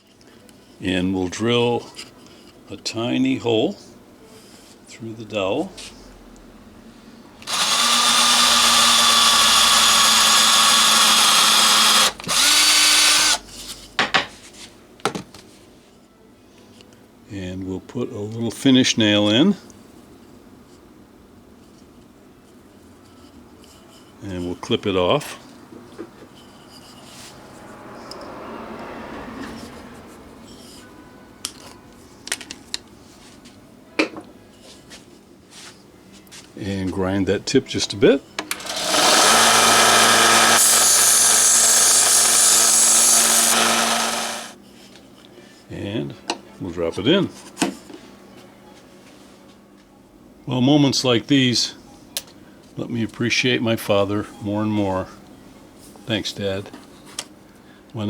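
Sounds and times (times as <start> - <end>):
electric drill boring wood: 7.4 - 13.4, 38.5 - 44.6.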